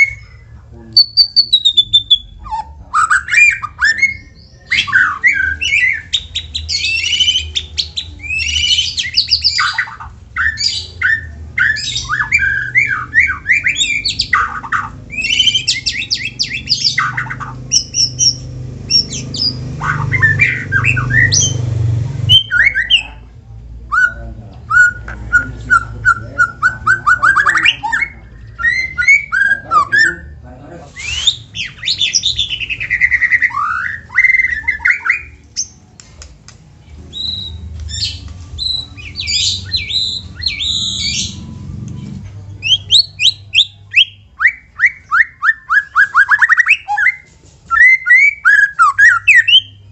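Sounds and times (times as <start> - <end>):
bird singing whistles and chattering: 0.0 - 23.2, 23.9 - 35.8, 37.1 - 49.9.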